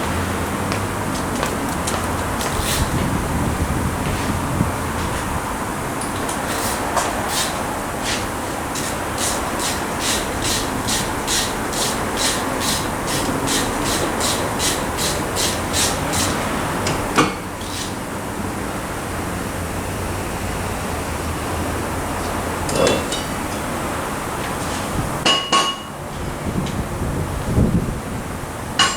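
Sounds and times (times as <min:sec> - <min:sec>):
hand tool rasping metal: 0:06.5 - 0:16.4.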